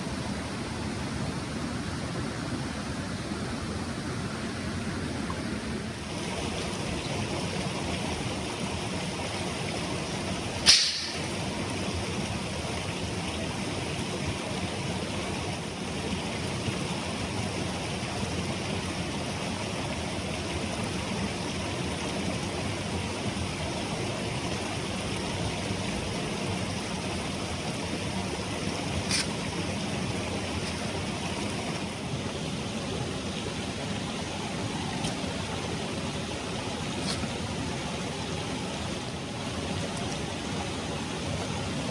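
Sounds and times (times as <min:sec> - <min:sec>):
stream rushing over rocks: 0:00.0 - 0:41.9
sharp snap: 0:10.7 - 0:11.3.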